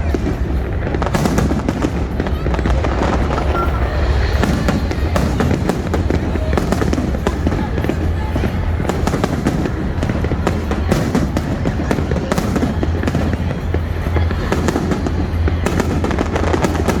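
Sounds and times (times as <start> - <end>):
fireworks bangs and crackles: 0.0 - 17.0
low rumble: 1.7 - 7.6.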